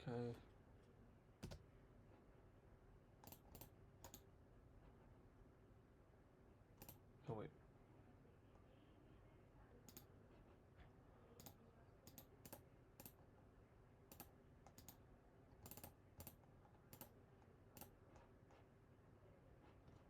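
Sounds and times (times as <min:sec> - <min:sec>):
low room hum: 0:00.0 - 0:20.0
mouse and keyboard clicks: 0:01.4 - 0:01.6, 0:03.2 - 0:04.2, 0:06.8 - 0:07.0, 0:09.9 - 0:10.1, 0:11.4 - 0:13.2, 0:14.1 - 0:15.0, 0:15.6 - 0:17.2.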